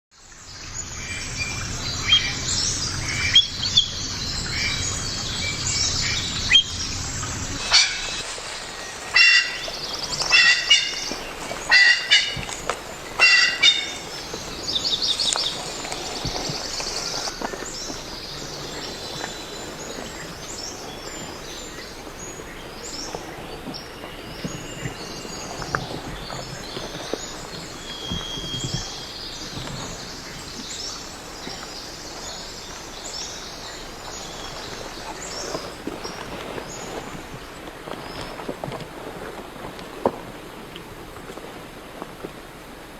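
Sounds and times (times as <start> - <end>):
outdoor background hiss: 0.2 - 42.9
small birds chirping: 0.3 - 38.4
high whistled bird notes: 0.9 - 11.0.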